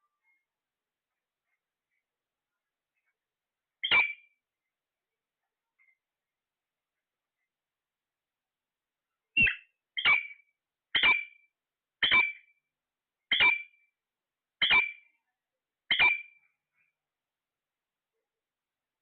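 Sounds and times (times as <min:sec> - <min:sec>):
parrot squawking: 0:03.8 - 0:04.2, 0:09.4 - 0:10.4, 0:11.0 - 0:11.4, 0:13.3 - 0:13.6.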